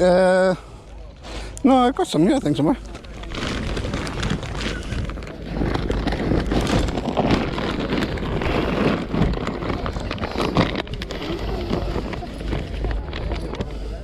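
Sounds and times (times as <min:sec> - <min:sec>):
microphone handling rustling: 0:03.0 - 0:13.7.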